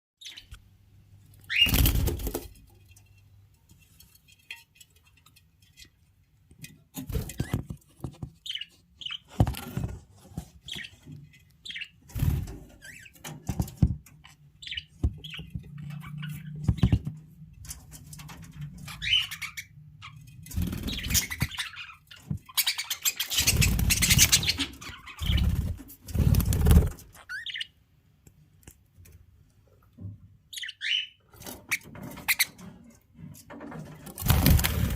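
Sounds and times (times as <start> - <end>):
budgerigars chirping: 1.5 - 1.8, 18.9 - 25.6, 27.2 - 27.8, 30.5 - 32.5
rustles and thumps: 9.3 - 11.2, 12.1 - 14.2.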